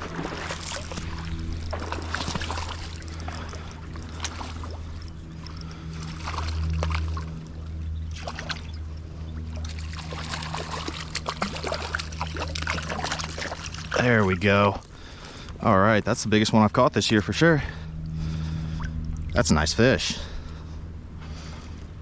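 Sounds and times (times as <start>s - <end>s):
water splashes: 0.0s - 15.2s
river water running: 0.0s - 21.8s
steady low hum: 0.0s - 22.0s.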